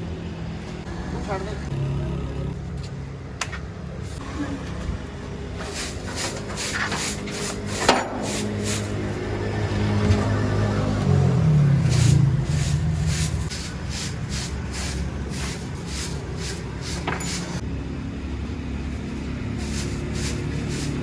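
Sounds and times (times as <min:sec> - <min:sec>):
steady low rumble: 0:02.5 - 0:21.0
short even strokes: 0:05.5 - 0:09.2, 0:11.8 - 0:17.6, 0:18.9 - 0:21.0.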